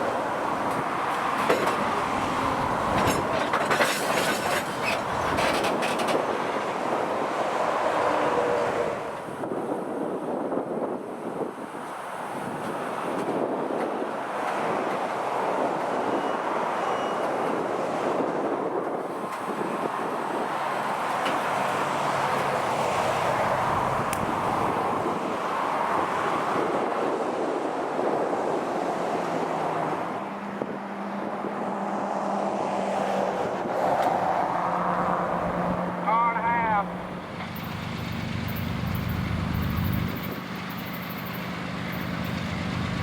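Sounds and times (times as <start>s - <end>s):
train rolling rumble: 0.0s - 9.9s, 17.2s - 27.1s, 36.7s - 43.0s
diesel engine hum: 33.4s - 43.0s.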